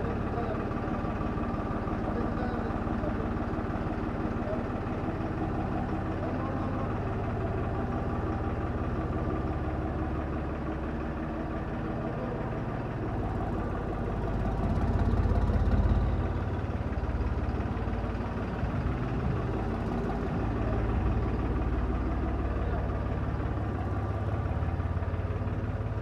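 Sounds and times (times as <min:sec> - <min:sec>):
tractor engine idling: 0:00.0 - 0:26.0.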